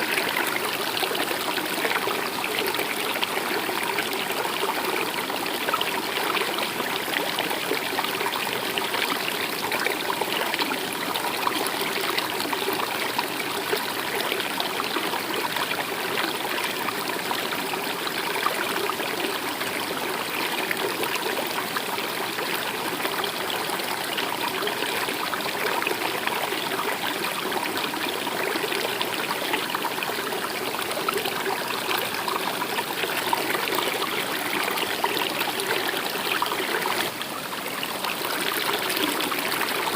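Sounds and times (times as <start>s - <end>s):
stream trickling and splashing: 0.0s - 39.9s.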